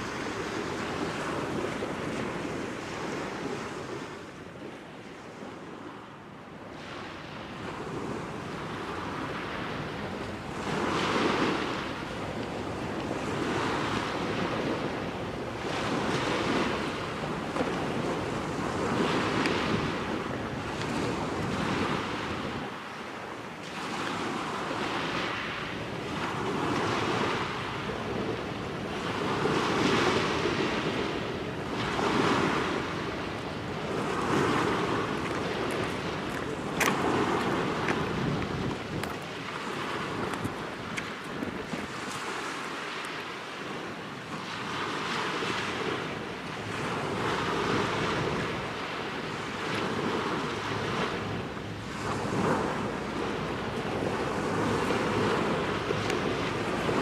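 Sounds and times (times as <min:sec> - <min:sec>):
small waves washing onto shore: 0:00.0 - 0:57.0
wind buffeting microphone: 0:06.8 - 0:57.0.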